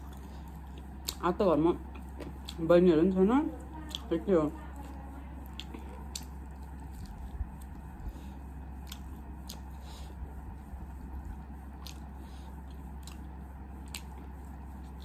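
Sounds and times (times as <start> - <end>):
chewing chicken: 0.0 - 2.7, 3.6 - 15.0.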